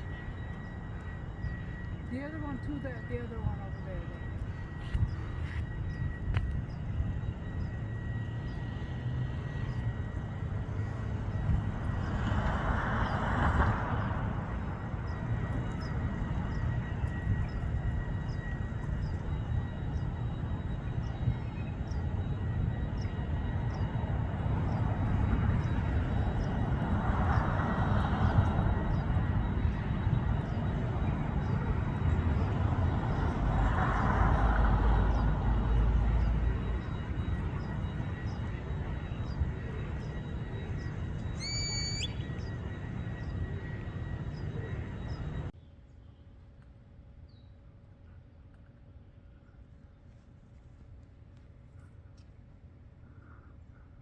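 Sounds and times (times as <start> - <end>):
steady low rumble: 0.0 - 45.6
small bird chirping: 40.8 - 45.4.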